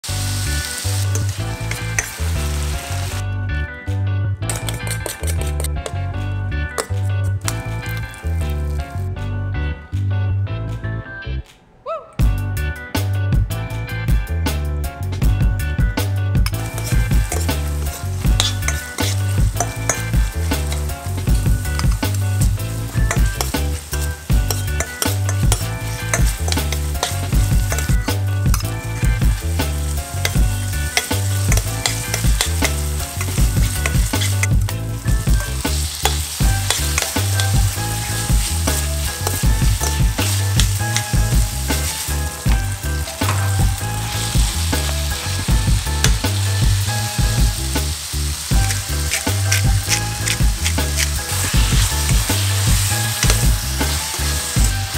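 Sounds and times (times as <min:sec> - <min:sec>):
food sizzling in hot oil: 0:00.0 - 0:03.2, 0:04.5 - 0:06.0, 0:06.7 - 0:09.0, 0:16.3 - 0:54.9
metal spatula scraping pan: 0:04.5 - 0:06.0, 0:06.8 - 0:08.2, 0:16.5 - 0:29.2, 0:30.1 - 0:42.2, 0:48.6 - 0:54.7.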